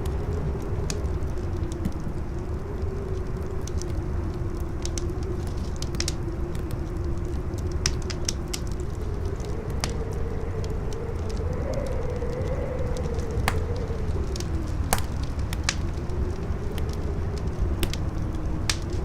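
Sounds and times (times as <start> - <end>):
campfire crackling and popping: 0.0 - 19.0
wind rushing and howling: 0.0 - 19.0.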